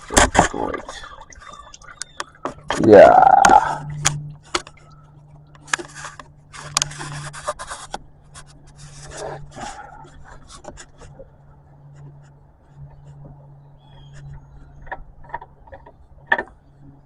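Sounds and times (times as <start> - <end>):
steady low hum: 0.0 - 17.0
rubbing and scraping: 5.6 - 16.5.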